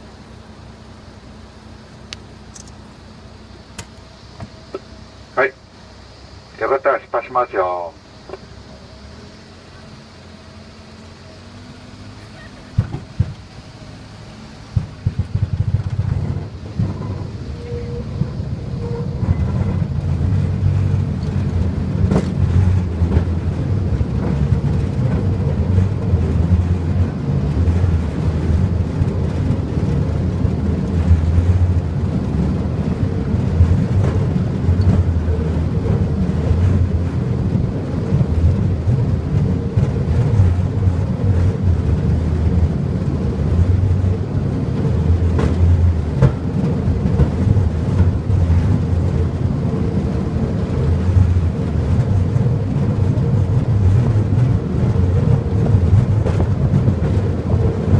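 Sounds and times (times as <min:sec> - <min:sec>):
rail cart engine and wheel rumble: 0:00.0 - 0:57.9
sharp clicks: 0:02.1 - 0:02.8.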